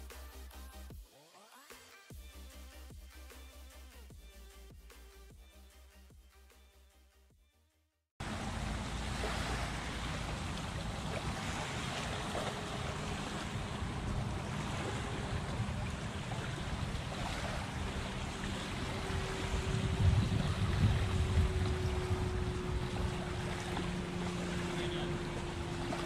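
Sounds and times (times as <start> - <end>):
small waves lapping on shore: 8.2 - 26.0
wind buffeting microphone: 8.7 - 26.0.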